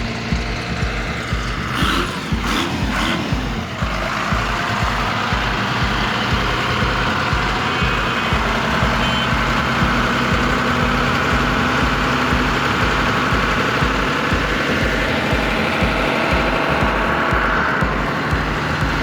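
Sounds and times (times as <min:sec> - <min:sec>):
tractor engine idling: 0:00.0 - 0:19.0.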